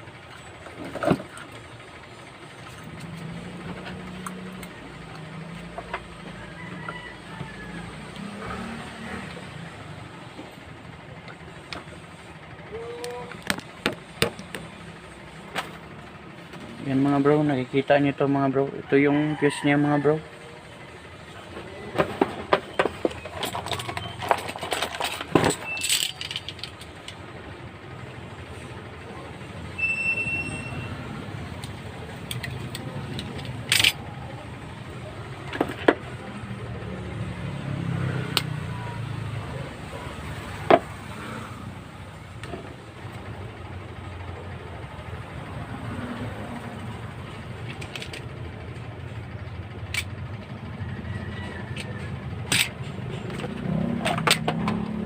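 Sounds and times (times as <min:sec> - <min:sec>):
fan parts clicking and clattering: 0:00.0 - 0:18.7, 0:20.6 - 0:29.8, 0:31.2 - 0:55.0
short high beep: 0:29.8 - 0:31.0.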